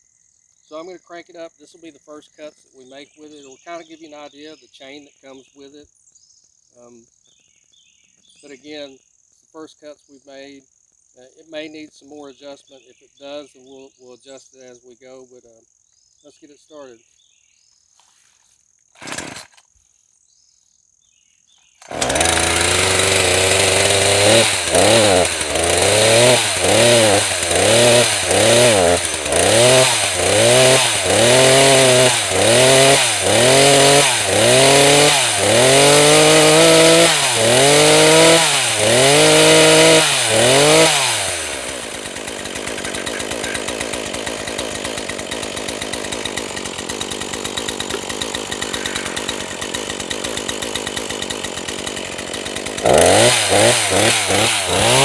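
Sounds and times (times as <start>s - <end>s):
chainsaw revving: 19.0s - 19.7s, 21.8s - 55.0s.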